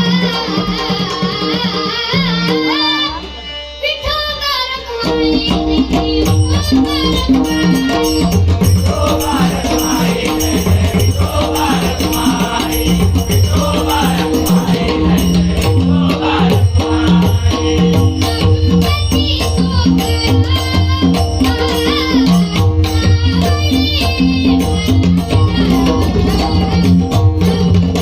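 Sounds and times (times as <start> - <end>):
percussion rhythm: 0.0 - 28.0.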